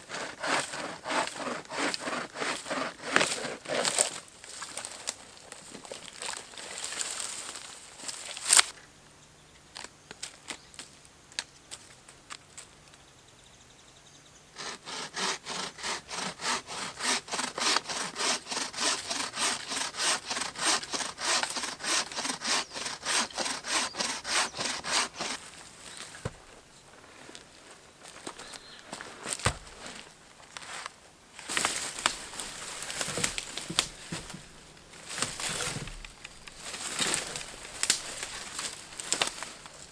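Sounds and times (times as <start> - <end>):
bow saw sawing wood: 0.0 - 4.2, 14.6 - 26.4, 31.5 - 39.6.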